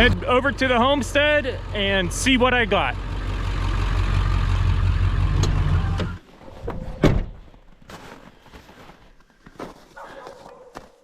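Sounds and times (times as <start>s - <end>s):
truck engine droning: 0.0s - 6.2s.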